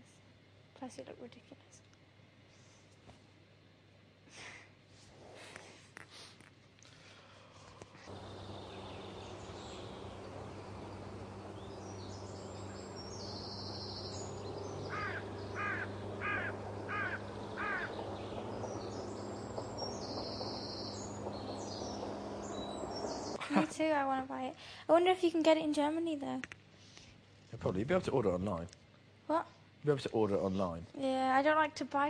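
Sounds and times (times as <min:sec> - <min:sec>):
background hum and hiss: 0:00.0 - 0:32.0
bird calling: 0:08.1 - 0:23.4.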